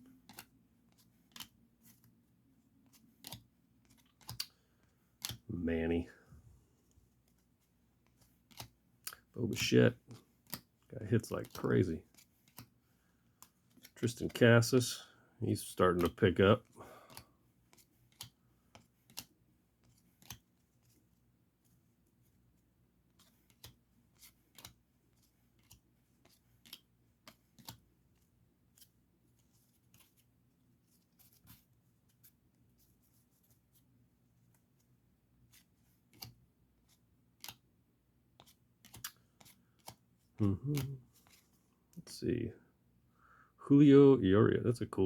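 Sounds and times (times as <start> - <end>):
trading cards clicking and sliding: 0.1 - 2.2, 2.8 - 5.5, 7.2 - 12.8, 13.4 - 14.9, 15.9 - 21.0, 23.0 - 30.3, 30.9 - 33.8, 34.5 - 37.7, 38.3 - 42.1.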